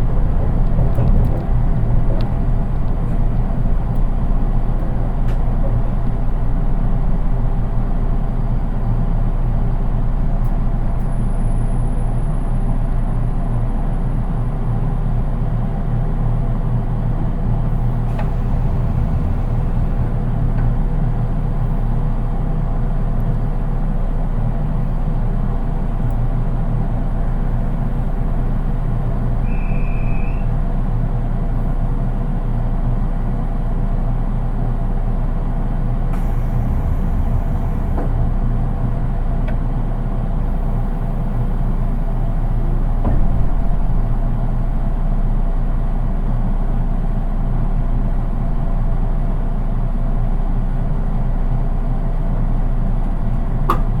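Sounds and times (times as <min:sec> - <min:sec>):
train wheels rumbling on rails: 0:00.0 - 0:54.0
small knock: 0:53.7 - 0:54.0.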